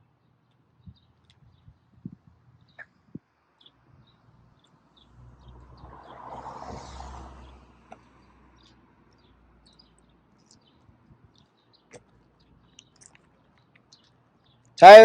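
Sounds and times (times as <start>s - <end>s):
small birds chirping: 0.0s - 6.2s, 7.4s - 14.8s
vehicle passing: 5.0s - 10.3s.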